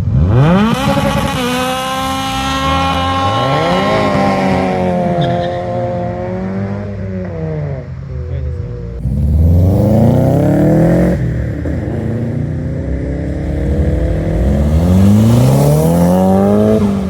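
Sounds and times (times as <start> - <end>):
car engine accelerating: 8.9 - 17.0.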